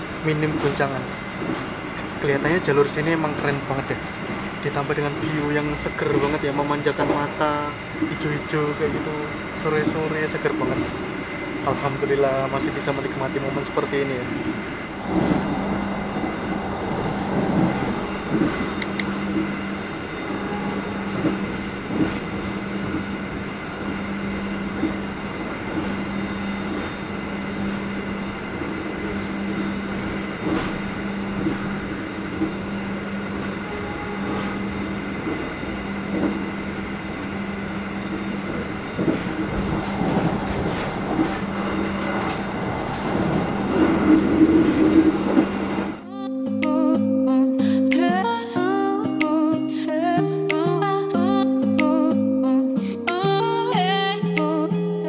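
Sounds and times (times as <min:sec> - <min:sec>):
train running noise with low hum: 0:00.0 - 0:46.1
wheels clicking over rails: 0:29.0 - 0:46.0.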